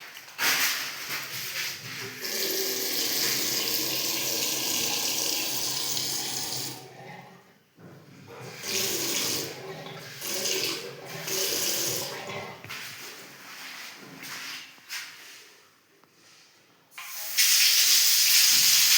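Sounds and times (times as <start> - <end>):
water running from a tap: 2.2 - 7.0, 8.4 - 12.4, 17.0 - 18.9.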